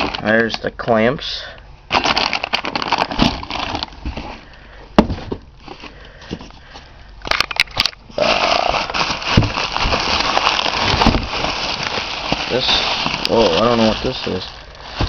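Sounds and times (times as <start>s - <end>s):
packaging crinkling and rustling: 0.0s - 0.6s, 1.9s - 4.6s, 5.2s - 15.0s
packaging crackling and clicking: 1.9s - 4.6s, 7.3s - 15.0s.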